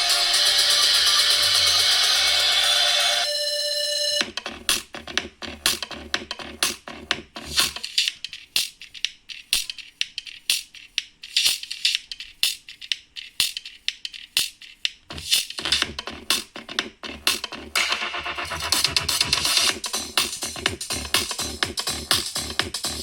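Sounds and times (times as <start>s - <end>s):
bass: 0.0s - 3.3s, 4.2s - 8.1s, 15.1s - 23.0s
music with sharp percussive hits: 0.0s - 3.3s, 4.0s - 23.0s.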